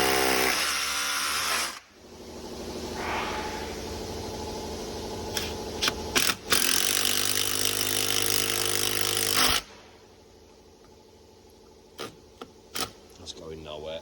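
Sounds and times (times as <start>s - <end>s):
power drill driving screws into brick: 0.0s - 1.8s, 5.8s - 9.7s.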